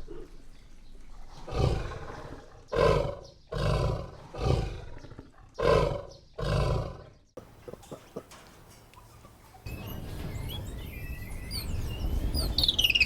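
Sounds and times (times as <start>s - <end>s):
big cat roaring: 1.4s - 7.1s.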